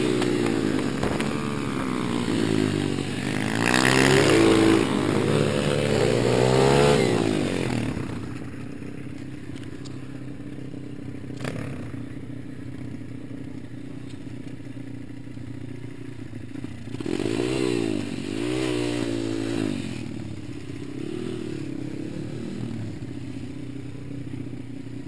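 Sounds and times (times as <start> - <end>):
pit bike engine revving: 0.0 - 9.8, 11.3 - 12.2, 16.8 - 23.2.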